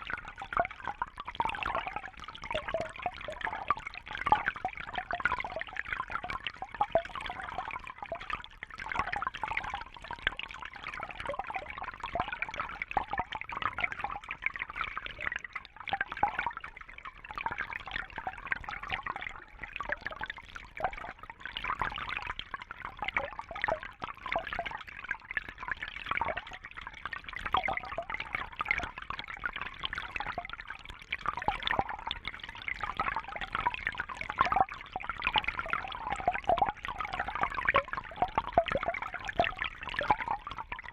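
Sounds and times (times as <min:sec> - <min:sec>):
water trickling and bubbling: 0:00.0 - 0:40.9.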